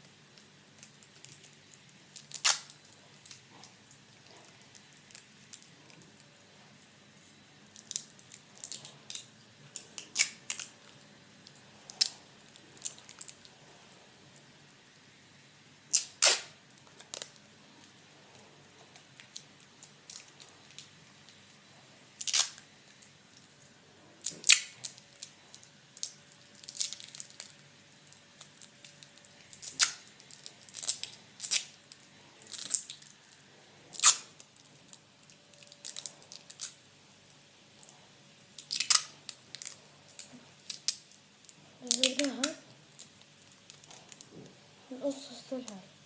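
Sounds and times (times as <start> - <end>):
adhesive tape rasping off roll: 15.9 - 16.5.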